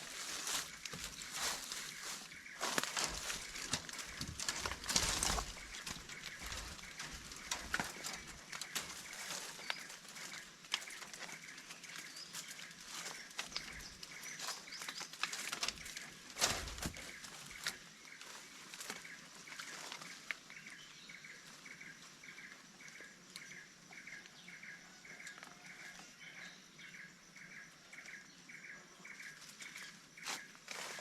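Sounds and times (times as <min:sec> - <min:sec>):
rustles and knocks: 0:00.0 - 0:10.4, 0:15.3 - 0:17.7.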